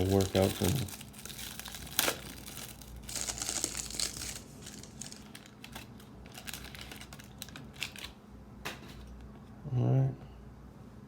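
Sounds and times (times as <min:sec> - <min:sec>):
card pack crinkling: 0:00.0 - 0:08.2.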